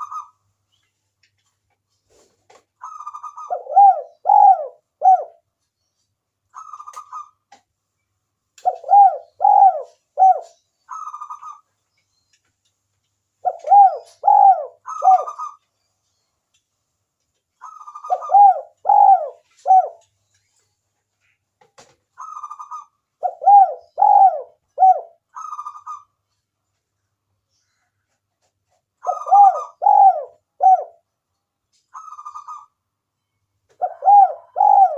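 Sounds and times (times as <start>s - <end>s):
dove cooing with rolling trill: 2.8s - 5.4s, 8.6s - 11.6s, 13.4s - 15.6s, 17.6s - 20.1s, 22.2s - 26.1s, 29.0s - 31.1s, 32.0s - 32.7s, 33.7s - 34.9s.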